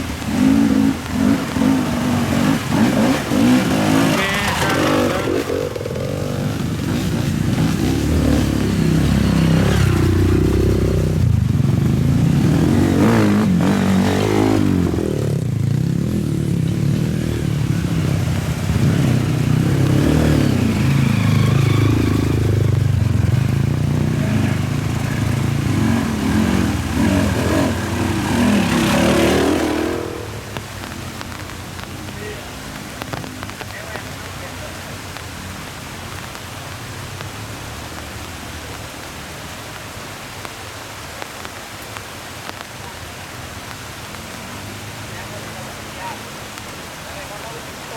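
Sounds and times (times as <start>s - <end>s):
motorcycle engine revving: 0.0s - 33.7s.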